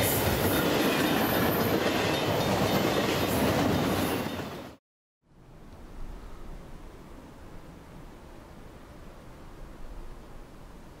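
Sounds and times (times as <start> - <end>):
train wheels clattering on rails: 0.0 - 4.8
faint steady hiss: 5.3 - 11.0.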